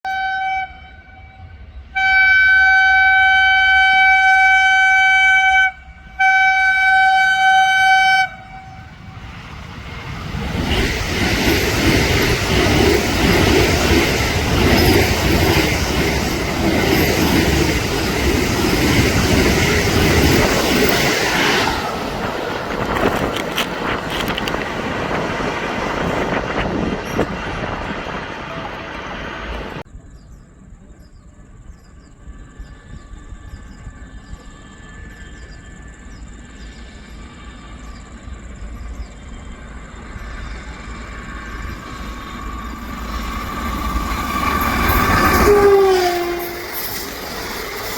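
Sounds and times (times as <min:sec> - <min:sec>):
train horn blasts: 0:00.1 - 0:09.2, 0:44.9 - 0:47.1
train wheels rumbling and clattering: 0:08.6 - 0:29.9, 0:31.8 - 0:47.9.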